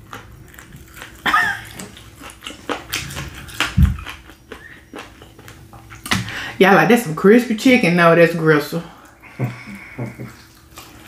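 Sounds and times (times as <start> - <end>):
chewing with wet crunches: 0.0 - 6.2, 9.0 - 11.0.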